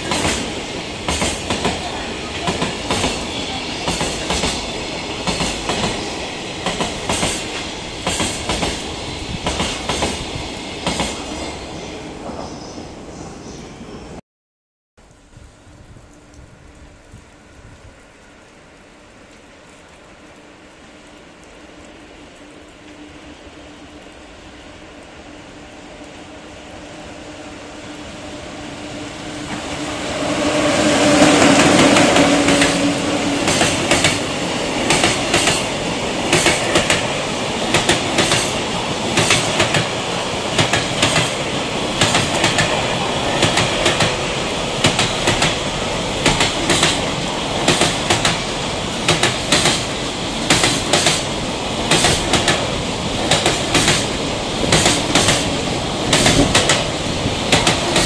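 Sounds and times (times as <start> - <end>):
electric locomotive humming: 0.0 - 14.2, 15.4 - 58.0
wheels clickety-clack: 31.4 - 34.2, 34.9 - 35.7, 37.7 - 41.4, 42.0 - 44.2, 44.8 - 45.6, 46.2 - 48.4, 49.0 - 51.3, 51.9 - 54.1, 54.7 - 55.5, 56.1 - 56.9, 57.5 - 58.0.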